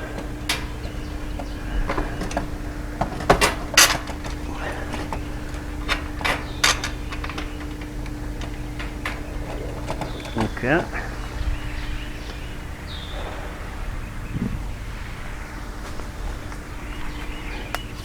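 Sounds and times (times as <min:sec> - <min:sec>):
wooden panels and bolts knocking: 0:00.0 - 0:12.6
steady low hum: 0:00.0 - 0:18.0.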